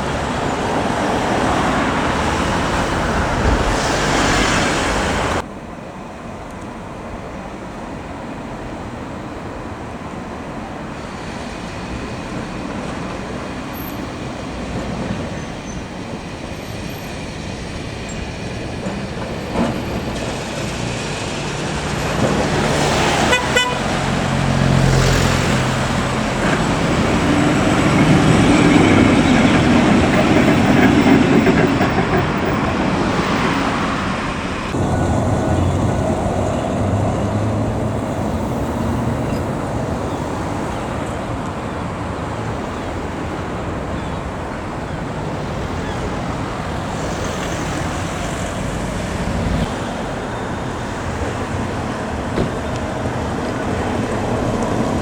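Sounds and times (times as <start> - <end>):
tram running rumble: 0.0 - 55.0
tram warning signal: 6.2 - 55.0.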